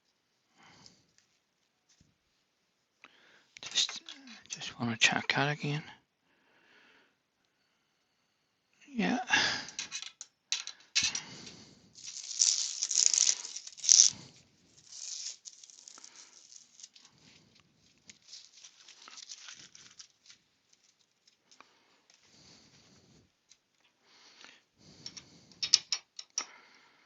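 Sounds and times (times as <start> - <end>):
hands rustling and scraping wood: 11.0 - 23.7.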